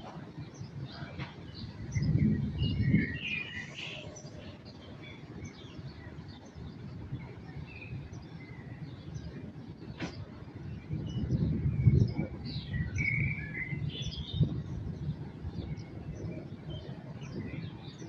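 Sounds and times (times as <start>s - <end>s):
birds chirping: 0.0s - 18.0s
low rumble: 0.8s - 4.1s.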